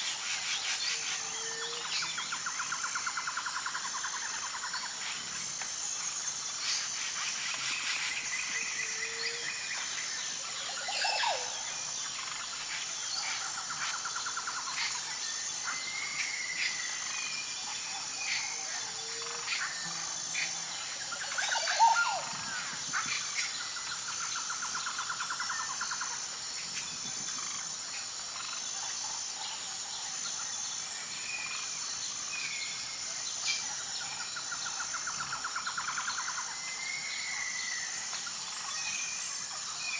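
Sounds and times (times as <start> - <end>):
bird calls and trills: 0.0 - 39.9
high-pitched insect drone: 0.0 - 39.9.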